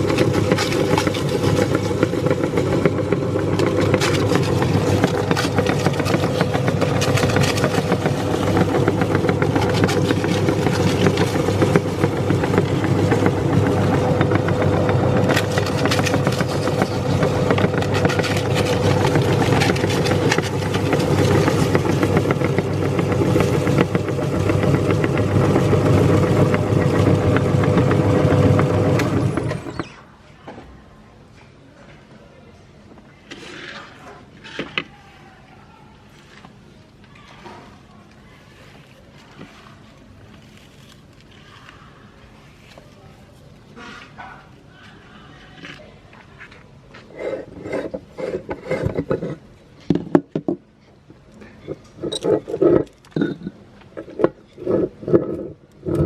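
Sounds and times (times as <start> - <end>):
meat grinder motor humming: 0.0 - 30.0
small crackles: 36.2 - 43.0.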